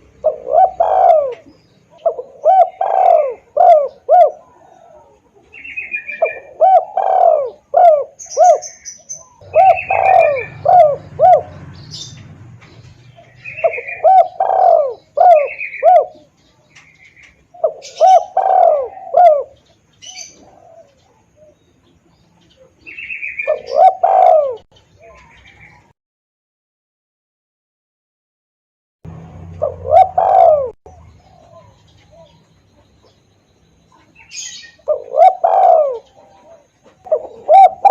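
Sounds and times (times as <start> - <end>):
dove cooing: 0.0 - 25.9, 29.1 - 33.2, 33.8 - 37.9.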